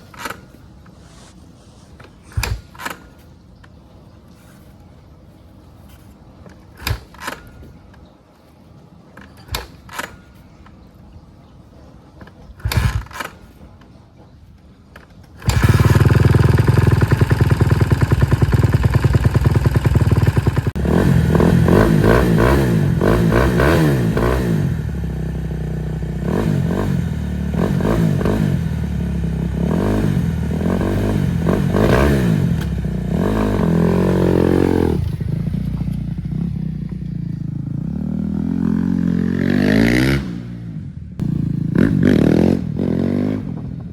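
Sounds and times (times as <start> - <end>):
dirt bike engine starting and revving: 12.6 - 13.4, 15.4 - 43.9.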